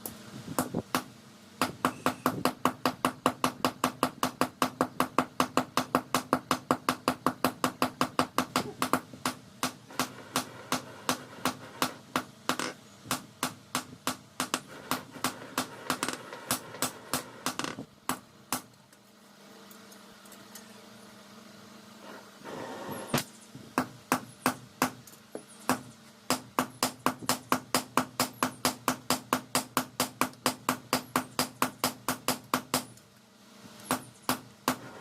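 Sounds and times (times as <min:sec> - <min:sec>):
hammer striking steel on anvil: 0:00.6 - 0:18.7.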